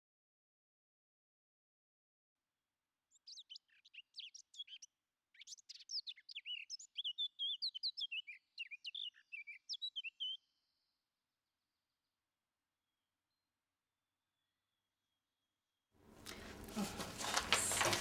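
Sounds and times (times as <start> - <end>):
bird chirping and warbling: 3.1 - 10.9.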